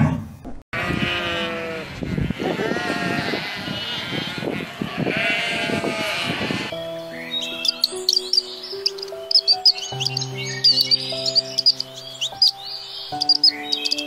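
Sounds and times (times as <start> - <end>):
sheep bleating: 0.8 - 6.7.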